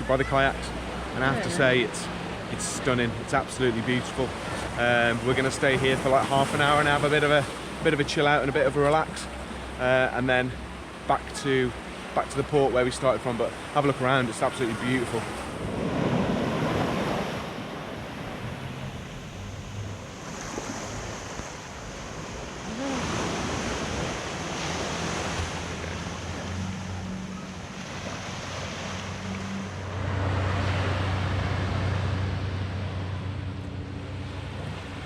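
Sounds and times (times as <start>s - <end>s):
sea waves washing onto shore: 0.0s - 35.0s.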